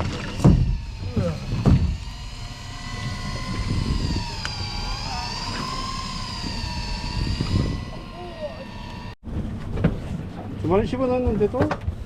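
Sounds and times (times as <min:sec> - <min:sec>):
electric fishing reel motor whining: 0:00.0 - 0:09.2
low rumble of boat: 0:00.0 - 0:12.0.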